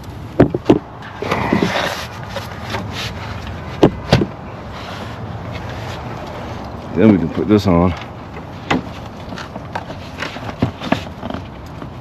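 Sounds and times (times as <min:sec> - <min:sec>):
sharp clicks and knocks: 0:00.0 - 0:04.4
parts scraping and rustling: 0:00.0 - 0:12.0.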